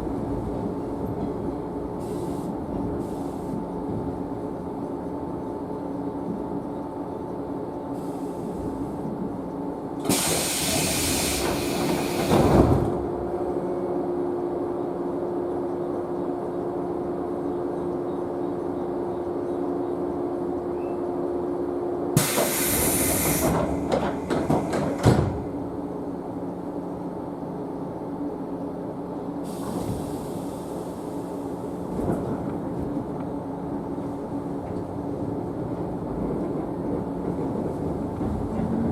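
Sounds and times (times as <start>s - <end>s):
train equipment humming: 0.0s - 38.9s
compressed air hiss: 10.1s - 12.3s, 22.2s - 23.6s.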